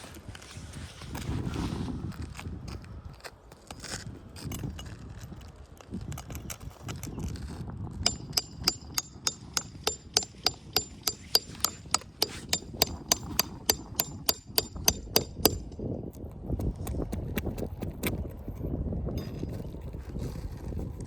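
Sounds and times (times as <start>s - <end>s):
hammer striking with metallic ring: 8.1s - 15.8s.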